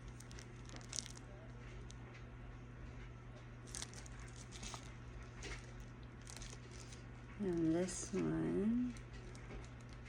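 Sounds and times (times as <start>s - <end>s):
plastic bags of coins crinkling: 0.0s - 1.2s, 3.7s - 8.2s
steady low hum: 0.0s - 10.0s.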